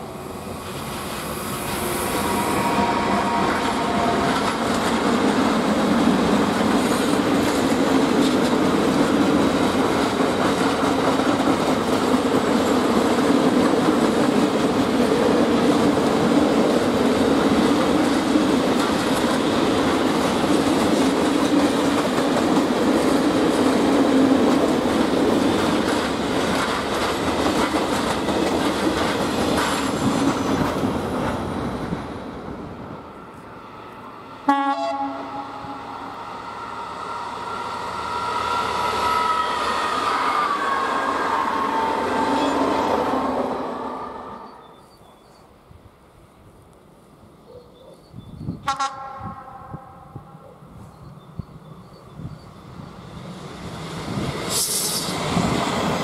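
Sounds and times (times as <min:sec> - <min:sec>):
train wheels rumbling on rails: 0:00.0 - 0:34.1, 0:48.4 - 0:56.0.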